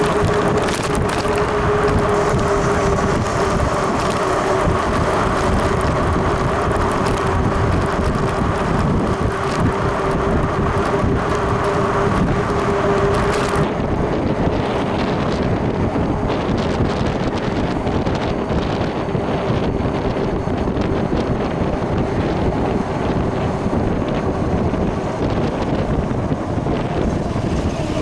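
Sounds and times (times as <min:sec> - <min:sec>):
electric motor whine: 0:00.0 - 0:18.8
wind on microphone: 0:00.0 - 0:28.0.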